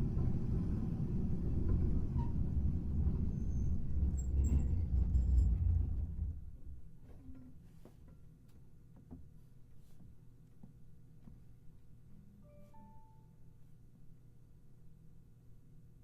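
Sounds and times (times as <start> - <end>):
tram running with low rumble: 0.0 - 7.6.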